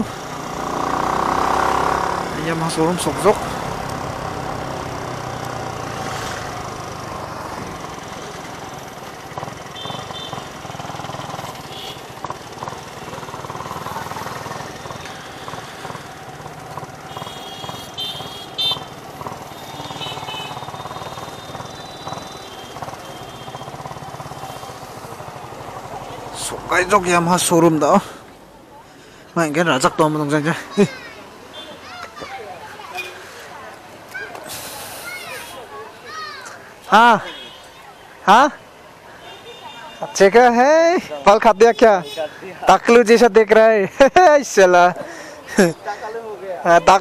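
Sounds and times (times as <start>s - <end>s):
motorcycle engine running: 0.0s - 28.5s.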